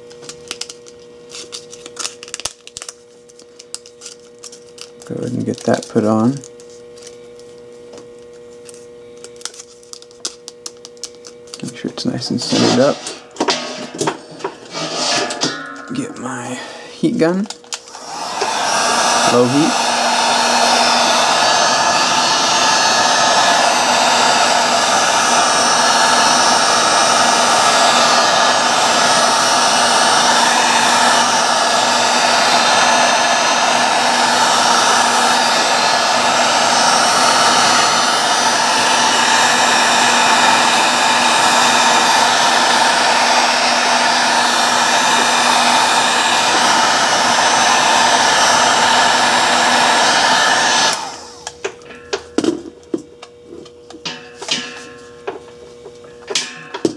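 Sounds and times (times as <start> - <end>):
heat gun blowing air: 11.5 - 51.6.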